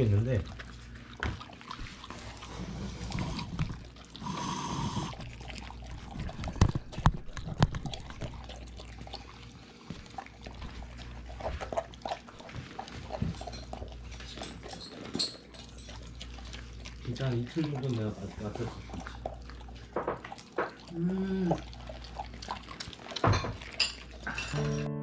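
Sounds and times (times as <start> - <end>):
dogs chewing wetly: 0.0 - 24.6
short high tone: 24.6 - 25.0.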